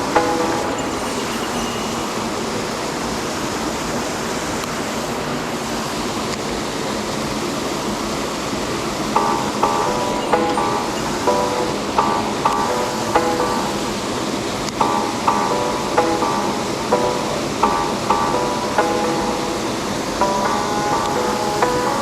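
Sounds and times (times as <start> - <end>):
plucked background music: 0.0 - 1.6, 9.2 - 22.0.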